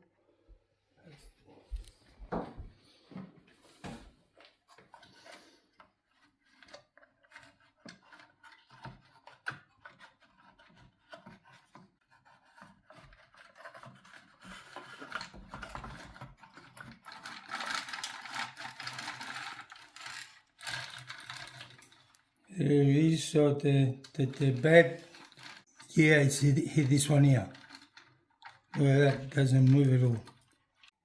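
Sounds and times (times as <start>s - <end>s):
scraping and rubbing on wood: 4.6s - 22.4s, 24.1s - 31.0s.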